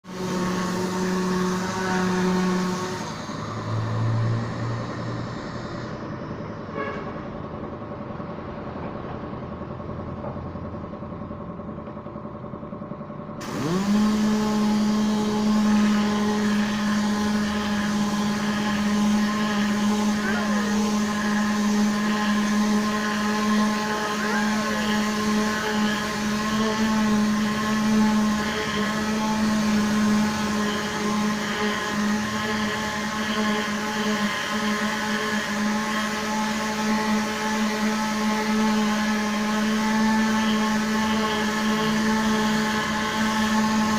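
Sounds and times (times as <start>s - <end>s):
electric motor humming: 0.0s - 6.2s, 13.4s - 43.9s.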